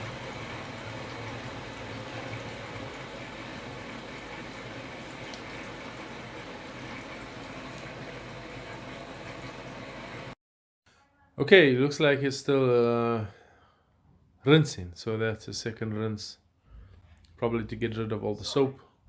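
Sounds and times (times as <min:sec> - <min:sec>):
water rushing in washing machine: 0:00.0 - 0:10.4.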